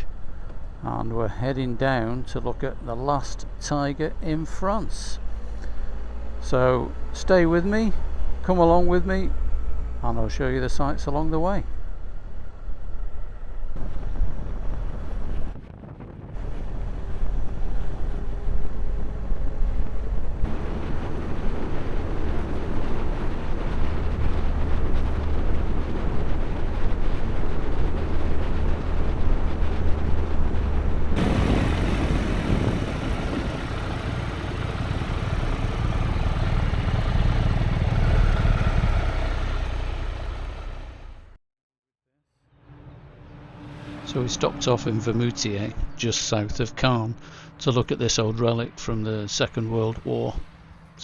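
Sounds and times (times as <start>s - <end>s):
wind and road noise: 0.0s - 41.4s
motorcycle engine running: 16.4s - 41.4s.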